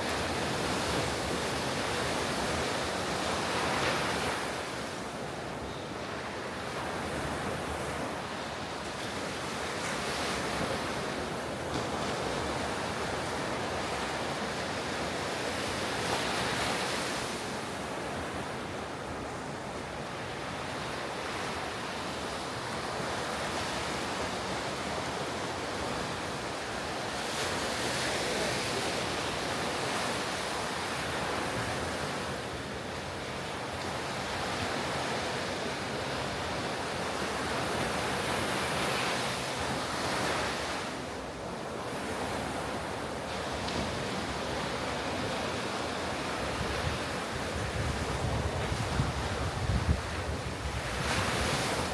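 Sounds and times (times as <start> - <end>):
ocean surf breaking on beach: 0.0 - 51.9
wind on microphone: 46.4 - 51.9.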